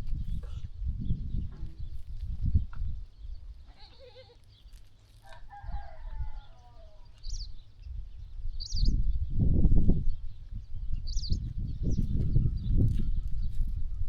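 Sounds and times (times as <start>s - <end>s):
rooster crowing: 5.2s - 7.1s.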